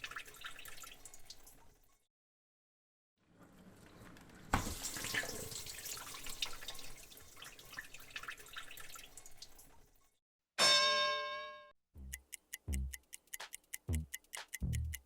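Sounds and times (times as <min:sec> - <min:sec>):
tap water running into sink: 0:04.6 - 0:09.7.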